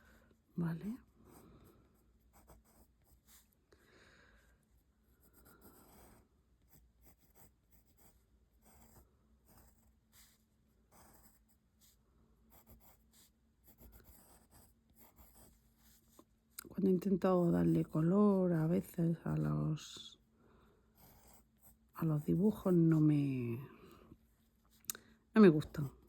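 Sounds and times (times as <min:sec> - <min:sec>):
pencil scratching on paper: 0:01.3 - 0:03.6, 0:04.6 - 0:16.3, 0:16.9 - 0:19.4, 0:20.9 - 0:23.3.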